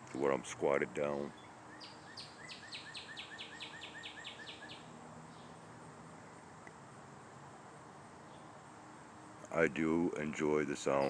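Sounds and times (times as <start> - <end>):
cardinal singing whistled notes: 1.4 - 4.9.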